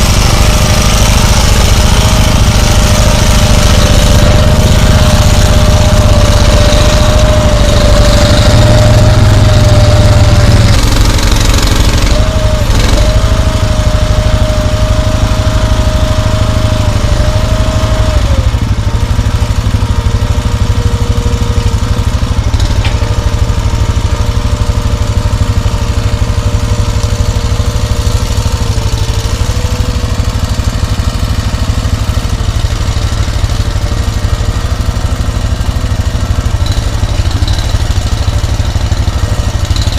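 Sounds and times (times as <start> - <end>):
atv engine whining: 0.0 - 39.9.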